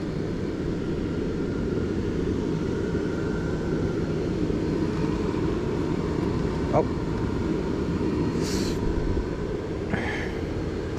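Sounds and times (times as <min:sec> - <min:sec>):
road noise: 0:04.6 - 0:10.9.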